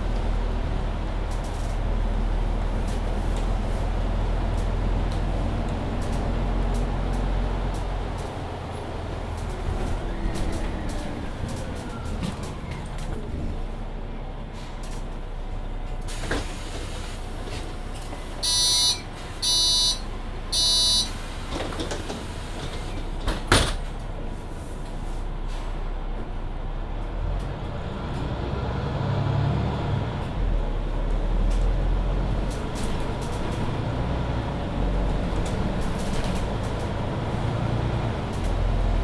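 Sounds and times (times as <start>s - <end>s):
bus engine with rising whine: 0.0s - 39.0s
door warning beeps: 18.4s - 21.3s
bus doors shutting knock: 18.4s - 22.2s.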